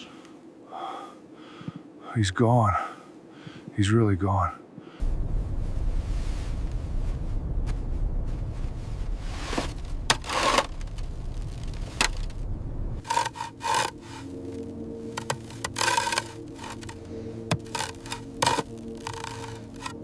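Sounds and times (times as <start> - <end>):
low wind rumble: 0.0 - 20.0
snow being cut and scraped: 9.0 - 12.3, 13.0 - 20.0.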